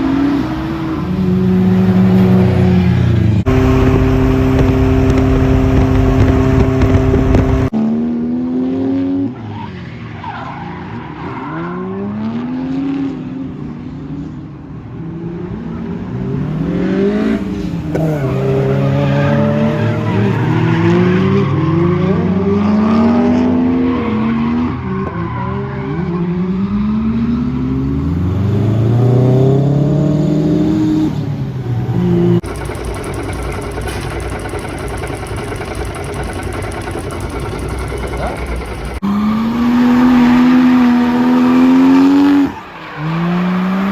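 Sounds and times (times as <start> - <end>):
car engine revving: 0.0 - 8.1, 16.5 - 23.8, 26.5 - 43.9
tire squeal: 9.3 - 12.2, 17.1 - 22.4, 23.6 - 26.9, 32.4 - 43.9.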